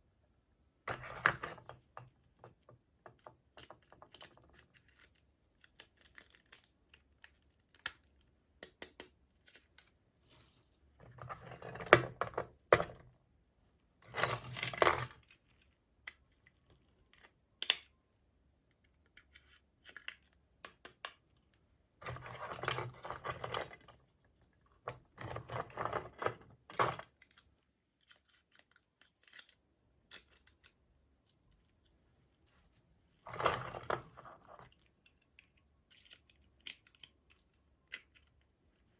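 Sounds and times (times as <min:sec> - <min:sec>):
small plastic parts clicking: 0:00.9 - 0:10.0, 0:14.1 - 0:17.9, 0:18.7 - 0:24.0, 0:24.8 - 0:32.0, 0:33.3 - 0:38.5.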